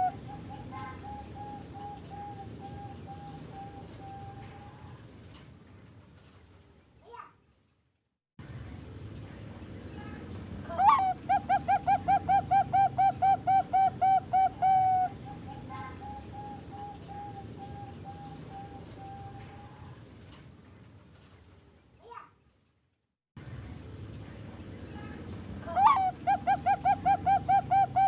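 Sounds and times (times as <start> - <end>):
dove cooing: 0.0 - 5.0, 10.7 - 20.0, 25.6 - 28.0.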